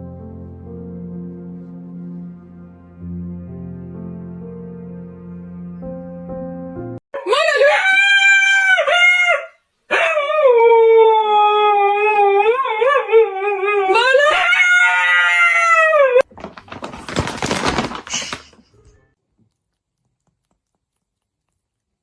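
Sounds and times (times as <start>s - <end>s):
dog howling: 7.2s - 16.3s.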